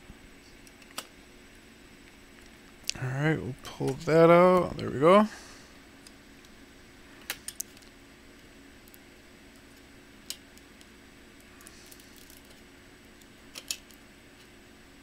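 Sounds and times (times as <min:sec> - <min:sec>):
faint steady hum: 0:00.0 - 0:15.0
laptop parts clicking and tapping: 0:13.5 - 0:14.0.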